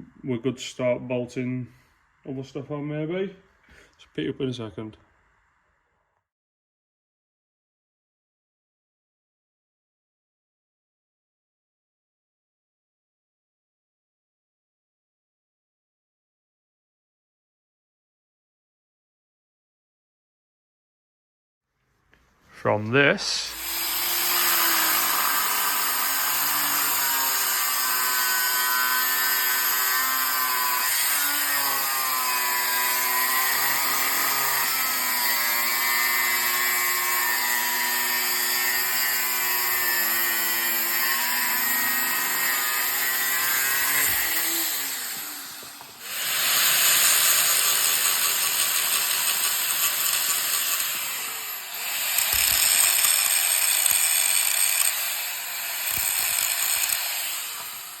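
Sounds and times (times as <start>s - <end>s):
handheld power tool whining: 23.5s - 58.0s.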